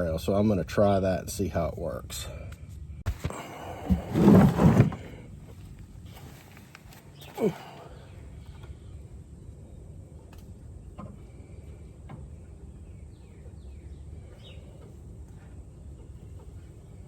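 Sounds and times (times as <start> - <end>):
faint bird chirps: 10.8 - 17.0.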